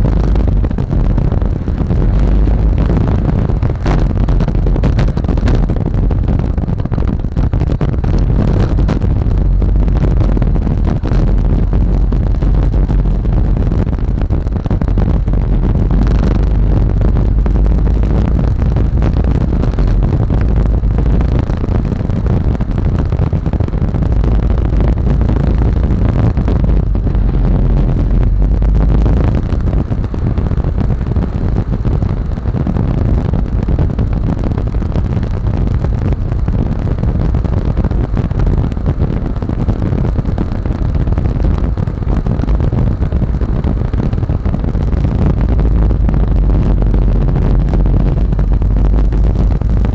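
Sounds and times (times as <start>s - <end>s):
scooter engine running: 0.0s - 34.2s
low rumble: 0.0s - 49.9s.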